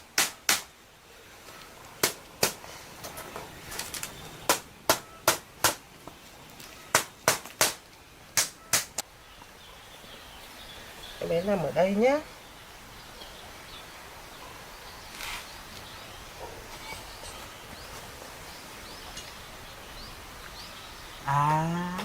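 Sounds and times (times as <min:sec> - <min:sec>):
hammer strikes: 0:04.5 - 0:05.8.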